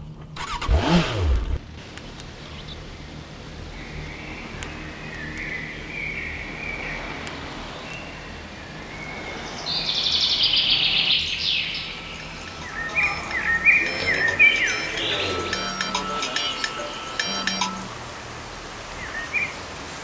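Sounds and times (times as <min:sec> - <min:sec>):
birds chirping: 0:02.3 - 0:19.8
loud buzzing trill: 0:11.9 - 0:18.6.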